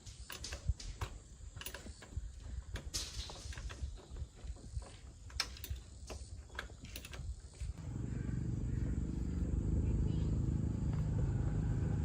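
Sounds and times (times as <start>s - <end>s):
small motorbike engine running: 7.8s - 12.0s.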